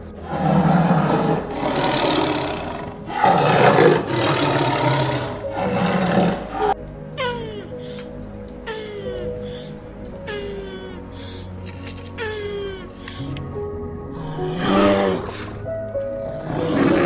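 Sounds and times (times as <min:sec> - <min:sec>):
large animal giving rough calls: 0:00.2 - 0:06.8.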